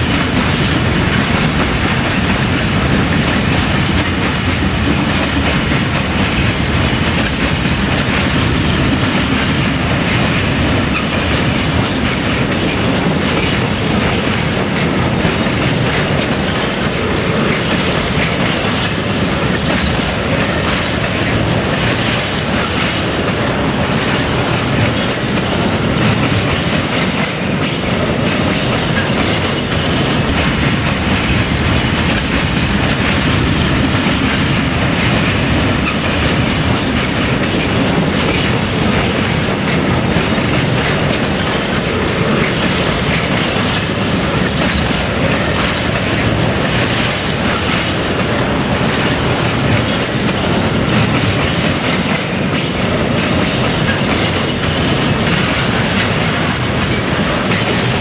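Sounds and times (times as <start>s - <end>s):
train wheels clattering over joints: 0.0s - 58.0s.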